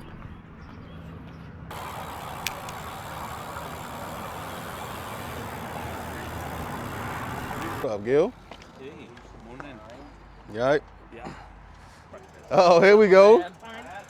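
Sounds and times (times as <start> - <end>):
motor vehicle humming: 0.0 - 8.7
click: 1.7 - 4.5.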